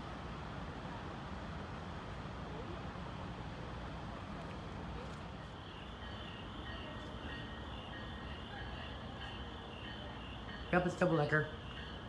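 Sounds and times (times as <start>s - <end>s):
distant train rumble: 0.0s - 12.0s
insects trilling: 5.6s - 12.0s.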